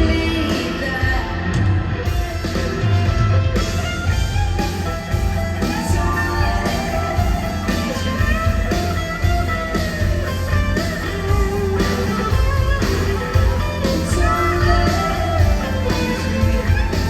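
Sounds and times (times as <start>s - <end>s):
electric guitar: 0.0s - 17.0s
live rock band playing: 0.0s - 17.0s.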